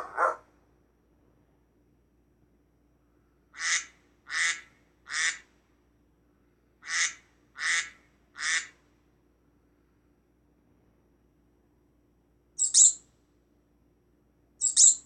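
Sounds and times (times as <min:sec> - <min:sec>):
duck quacking: 0:00.0 - 0:00.4.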